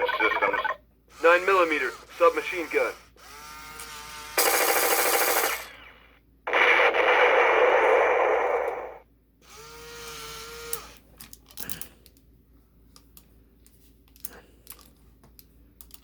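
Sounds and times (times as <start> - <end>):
toy gun firing effects: 4.4 - 9.0.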